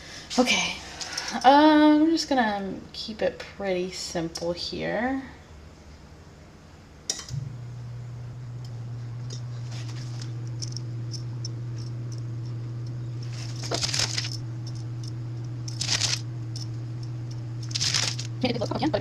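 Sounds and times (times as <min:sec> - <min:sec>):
low hum: 0:05.5 - 0:19.0
blade scoring bread: 0:09.6 - 0:18.5.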